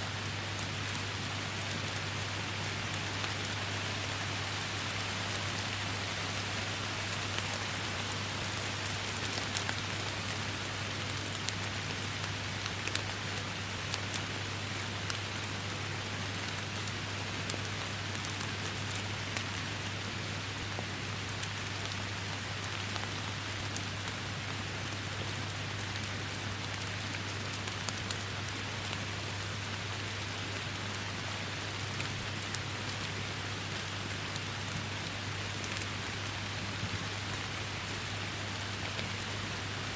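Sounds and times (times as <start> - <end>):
rain falling in forest: 0.0 - 39.9
raindrops ticking: 16.4 - 19.9, 20.6 - 29.1.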